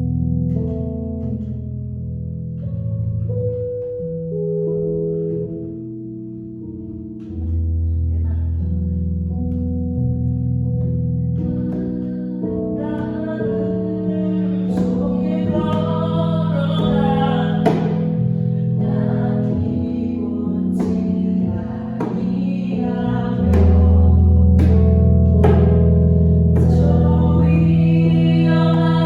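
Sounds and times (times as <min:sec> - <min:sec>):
bass: 0:00.0 - 0:29.0
sustained keyboard chords: 0:00.0 - 0:29.0
person singing: 0:11.8 - 0:25.8, 0:26.6 - 0:29.0
djembe strikes: 0:16.7 - 0:18.1, 0:20.7 - 0:28.9.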